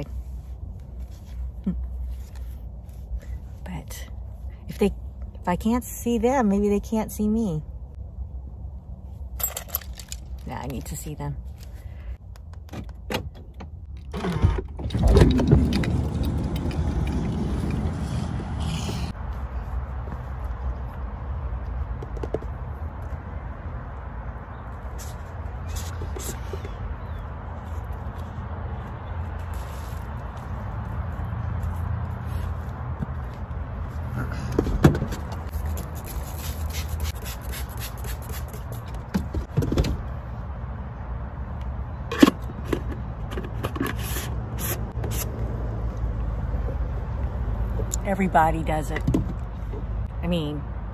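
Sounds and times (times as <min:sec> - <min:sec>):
outdoor noise rushing: 0:11.4 - 0:50.9
sliding van door opening: 0:14.1 - 0:18.0.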